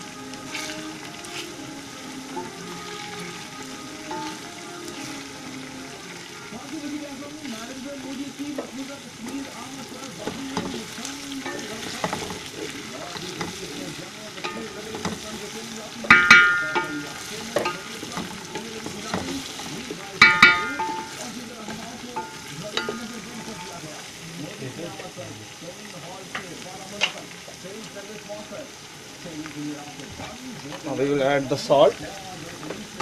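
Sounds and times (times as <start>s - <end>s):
chicken sizzling in a pot: 0.0s - 33.0s
spatula scraping metal pot: 0.4s - 1.6s, 10.2s - 13.8s
ringing scrape on pot: 16.1s - 19.4s, 20.2s - 21.3s.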